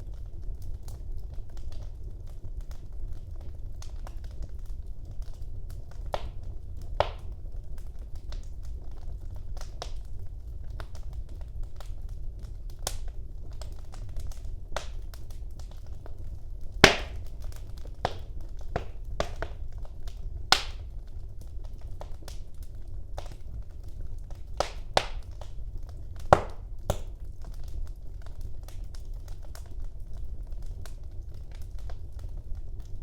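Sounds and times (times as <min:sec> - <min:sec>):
low rumble of flames: 0:00.0 - 0:33.0
wood fire crackling: 0:00.0 - 0:33.0
sharp pops of fire: 0:05.2 - 0:08.6, 0:09.6 - 0:29.8.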